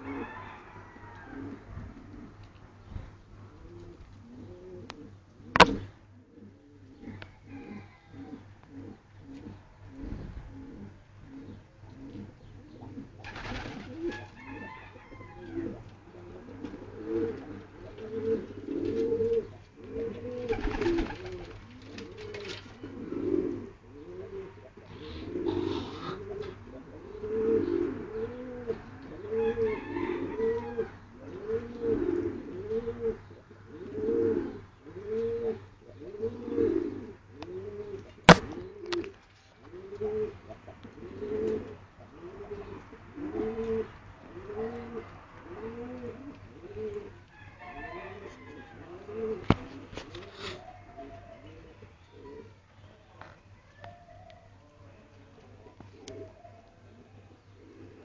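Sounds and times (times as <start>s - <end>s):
pigeons cooing: 0.0s - 52.7s, 53.8s - 58.0s.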